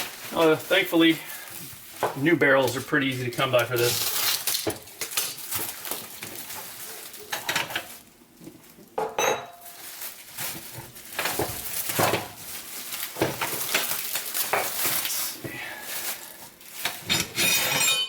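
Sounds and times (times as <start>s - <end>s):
metal gun parts clinking: 16.9s - 18.0s.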